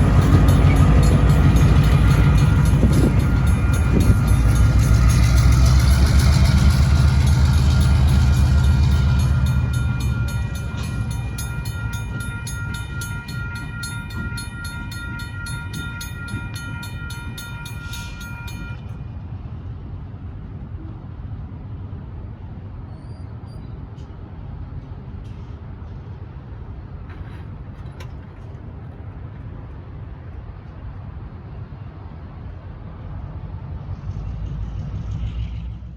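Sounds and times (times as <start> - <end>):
railroad crossing bell ringing: 0.0 - 19.2
diesel locomotive rumbling: 0.0 - 35.9.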